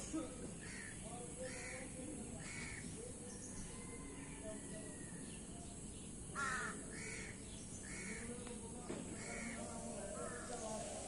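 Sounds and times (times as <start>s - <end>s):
bird harsh calls: 0.0s - 3.6s, 6.3s - 8.4s, 9.2s - 11.0s.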